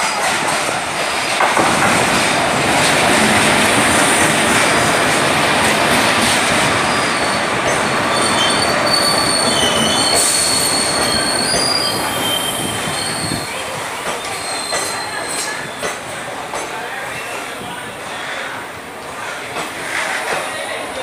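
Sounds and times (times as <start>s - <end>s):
train wheels rumbling on rail: 0.0s - 21.0s
wheel and brake squeals: 6.9s - 15.8s.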